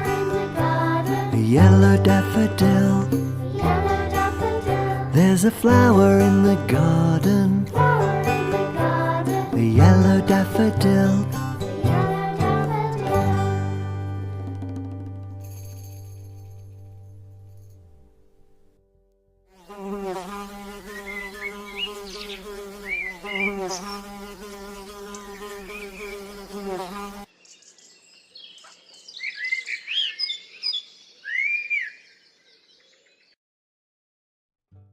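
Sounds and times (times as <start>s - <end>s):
flying insect buzzing: 0.0s - 13.6s, 19.5s - 27.3s
small birds chirping: 20.5s - 33.4s.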